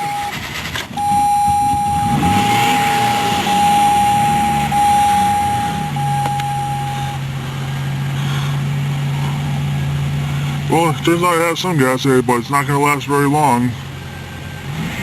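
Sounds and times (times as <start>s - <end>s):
dashboard warning chime: 0.0s - 7.4s
car engine cranking and idling: 0.0s - 15.0s.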